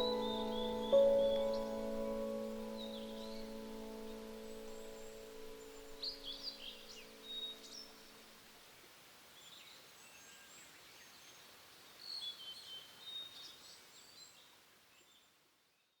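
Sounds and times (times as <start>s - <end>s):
held low musical tone: 0.0s - 8.0s
songbirds chirping and whistling: 0.0s - 8.2s
soft even hiss: 0.0s - 16.0s.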